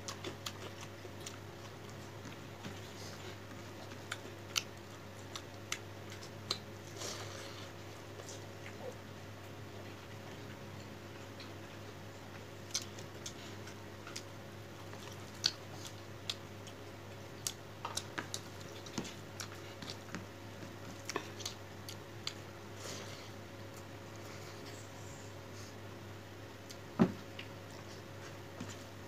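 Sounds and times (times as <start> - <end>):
person chewing: 0.0 - 9.0, 11.2 - 24.8
steady low hum: 0.0 - 29.0.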